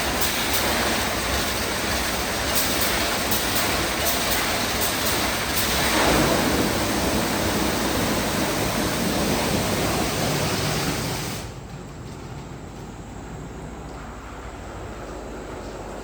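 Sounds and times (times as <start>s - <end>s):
car wash spraying water: 0.0s - 11.6s
machine humming: 0.0s - 11.7s.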